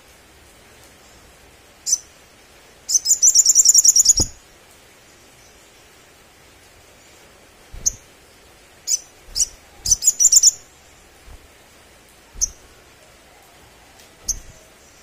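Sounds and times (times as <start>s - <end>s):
bird giving sharp high chirps: 2.9s - 4.4s, 7.8s - 8.1s, 8.9s - 11.5s, 12.4s - 12.7s, 14.2s - 14.7s.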